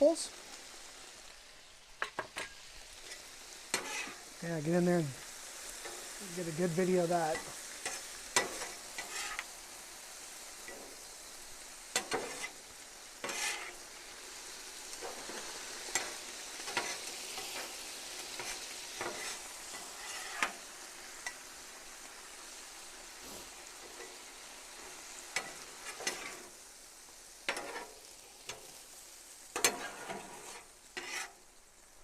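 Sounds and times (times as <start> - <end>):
food sizzling on a griddle: 0.0 - 32.0
spatula scraping on steel: 3.1 - 4.2, 7.4 - 9.5, 12.0 - 12.6, 13.2 - 13.8, 18.3 - 20.6, 25.4 - 26.5, 27.5 - 28.0, 29.6 - 31.4.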